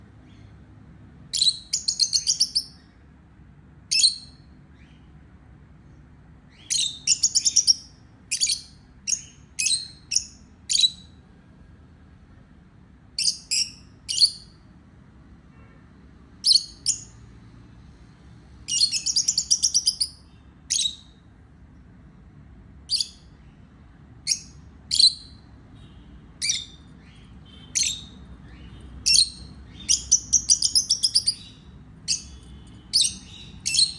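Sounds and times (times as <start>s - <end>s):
baby parrot chirping: 1.3s - 2.9s, 3.9s - 5.0s, 6.5s - 11.2s, 13.2s - 14.6s, 16.4s - 17.3s, 18.6s - 21.2s, 22.8s - 23.3s, 24.2s - 33.9s.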